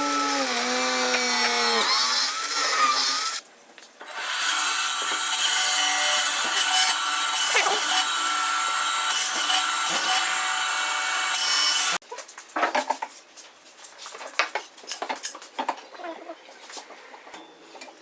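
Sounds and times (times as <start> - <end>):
power tool cutting wood: 0.0 - 3.4, 4.1 - 12.0.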